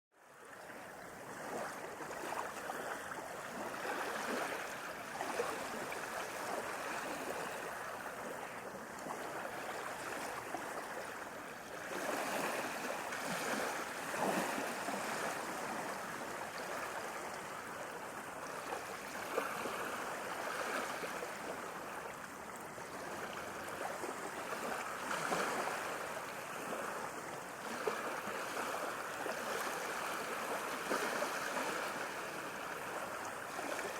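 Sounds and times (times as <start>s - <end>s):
ocean waves washing in: 0.6s - 33.9s.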